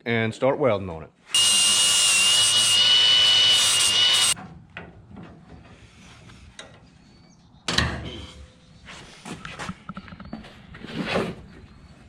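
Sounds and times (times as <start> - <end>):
power tool whining: 1.3 - 4.4.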